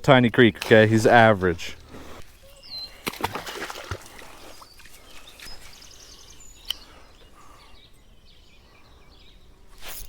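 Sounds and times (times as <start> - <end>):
high bird chirps: 2.4 - 3.1, 4.4 - 10.0
sharp clicks: 6.6 - 6.9.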